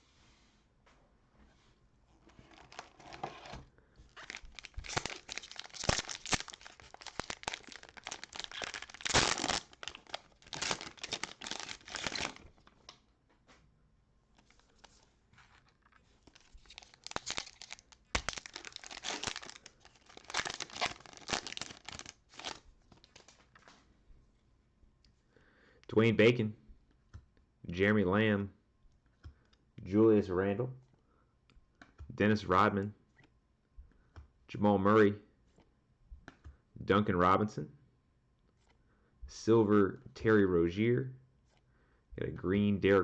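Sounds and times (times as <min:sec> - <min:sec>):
cellophane wrapper crackling: 0:02.5 - 0:03.2, 0:04.1 - 0:12.7, 0:14.4 - 0:23.7.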